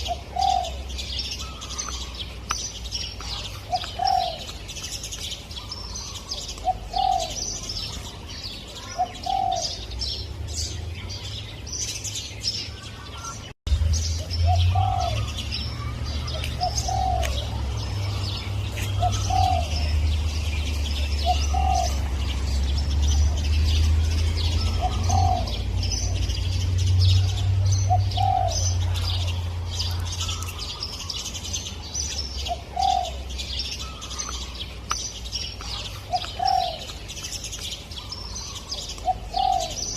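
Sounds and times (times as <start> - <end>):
dove cooing: 0.0 - 2.2, 3.2 - 4.6, 5.6 - 8.0, 8.7 - 10.0, 14.5 - 20.2, 20.9 - 22.5, 24.1 - 26.2, 27.2 - 31.2, 32.4 - 34.6, 35.6 - 37.0, 38.0 - 39.9
small birds chirping: 0.0 - 39.9.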